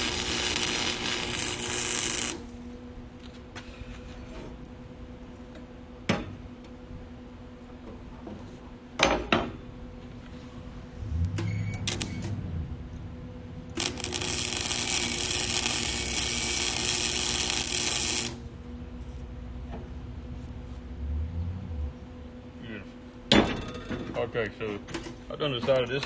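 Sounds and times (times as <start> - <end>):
welding arc crackling: 0.0 - 2.6, 11.0 - 12.5, 13.7 - 18.5
low hum: 9.6 - 22.6.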